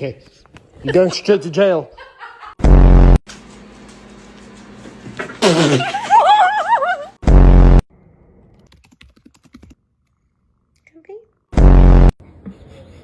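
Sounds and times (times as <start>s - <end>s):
loud low buzz: 2.6s - 3.2s, 7.2s - 7.8s, 11.6s - 12.1s.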